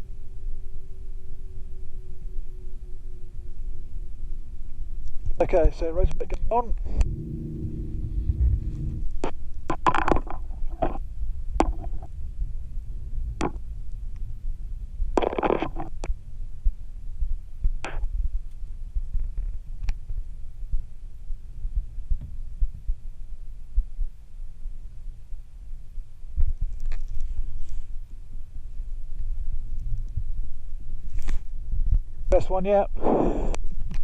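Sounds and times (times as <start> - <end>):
helicopter rotor winding down: 7.0 - 9.2.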